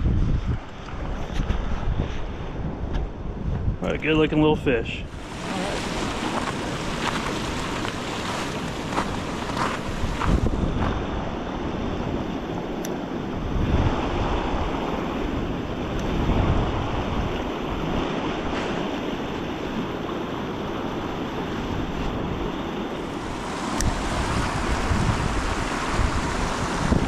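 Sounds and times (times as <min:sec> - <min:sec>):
wind buffeting microphone: 0:00.0 - 0:27.0
river water rushing: 0:05.1 - 0:10.6, 0:22.9 - 0:27.0.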